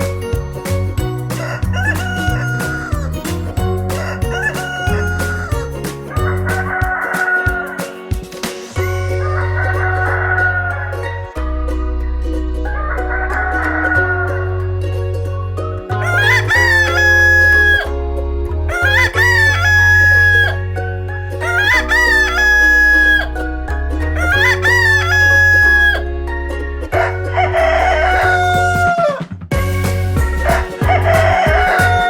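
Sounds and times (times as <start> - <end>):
background music with bass line: 0.0 - 32.0
rooster crowing: 1.4 - 3.2, 3.9 - 5.6, 6.4 - 7.8, 16.0 - 17.9, 18.7 - 20.6, 21.4 - 23.3, 24.2 - 26.0, 27.0 - 29.2, 30.4 - 32.0.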